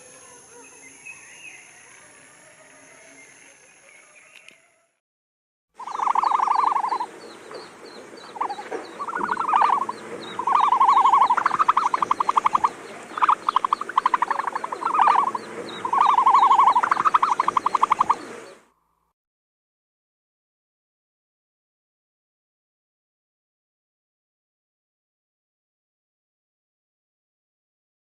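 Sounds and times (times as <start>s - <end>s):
rattling pulsed animal trills: 5.8s - 7.2s, 8.2s - 18.6s
background animal chorus: 5.8s - 18.7s.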